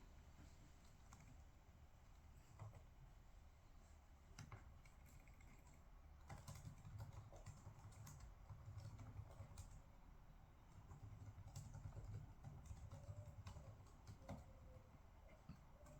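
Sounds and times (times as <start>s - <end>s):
typing on computer keyboard: 4.4s - 9.9s, 10.7s - 14.9s.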